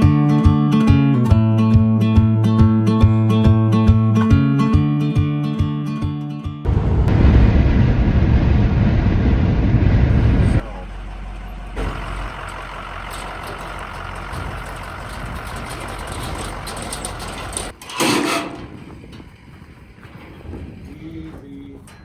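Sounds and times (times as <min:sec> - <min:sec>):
loud rush of noise: 0:06.7 - 0:10.6
car road and engine rumble: 0:06.7 - 0:17.8.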